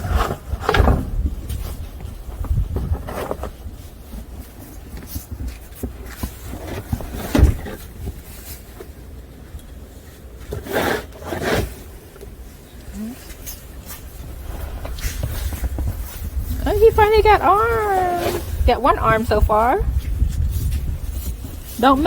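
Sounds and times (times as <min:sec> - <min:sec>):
wind rumble on microphone: 0:00.0 - 0:08.4, 0:14.0 - 0:22.0
snow crunching and scraping: 0:13.7 - 0:22.0.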